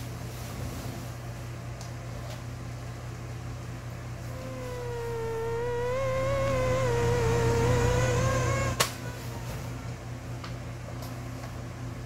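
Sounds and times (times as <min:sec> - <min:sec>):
mosquito buzzing from phone speaker: 0:04.3 - 0:08.8.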